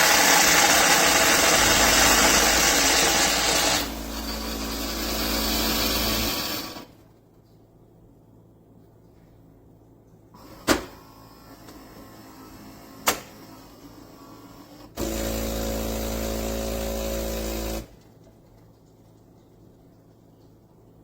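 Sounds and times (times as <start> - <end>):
espresso machine hum: 0.0 - 6.9, 15.0 - 17.9
loud mechanical buzz: 0.0 - 6.9, 15.0 - 17.9.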